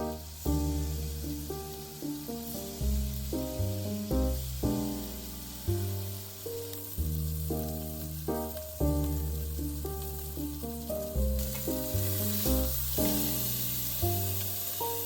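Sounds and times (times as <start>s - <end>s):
food sizzling in frying: 0.0s - 15.0s
melodic background music: 0.0s - 15.0s.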